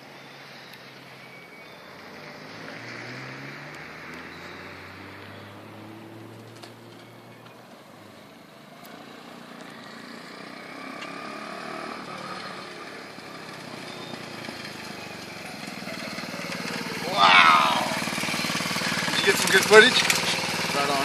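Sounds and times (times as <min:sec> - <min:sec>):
pocket bike engine running: 0:12.2 - 0:21.0.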